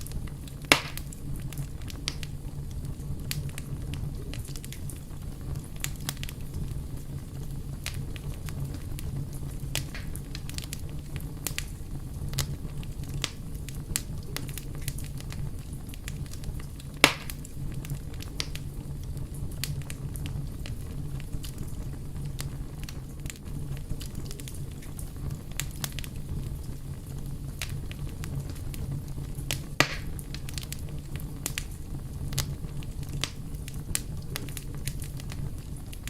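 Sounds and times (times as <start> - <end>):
fire crackling and popping: 0.0 - 36.0
low rumble of fire: 0.0 - 36.0
loud pop: 0.7 - 1.1, 17.0 - 17.4, 29.8 - 30.2.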